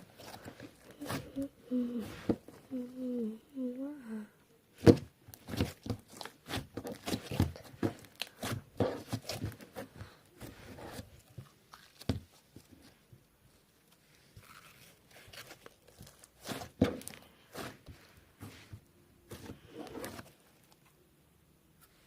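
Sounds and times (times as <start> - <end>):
slime squished by hand: 4.8 - 9.9.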